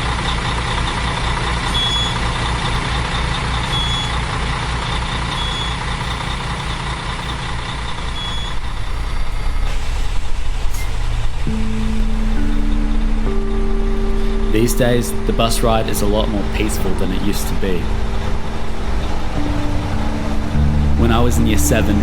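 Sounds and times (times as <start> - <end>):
bus engine idling: 0.0 - 22.0.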